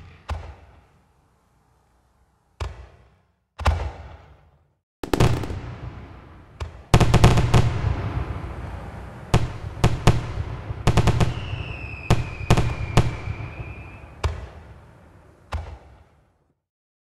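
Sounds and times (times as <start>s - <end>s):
fireworks bangs and crackle: 5.0s - 16.4s
firework whistle: 7.0s - 14.6s.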